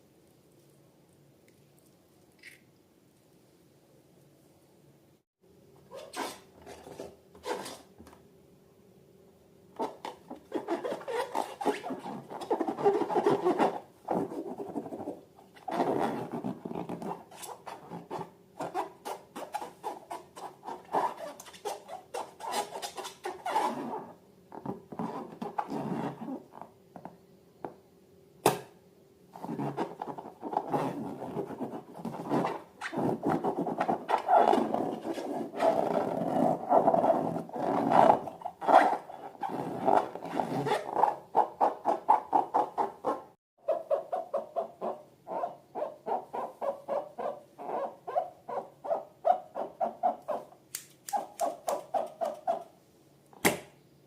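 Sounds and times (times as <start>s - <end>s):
sharp click: 50.7s - 51.8s.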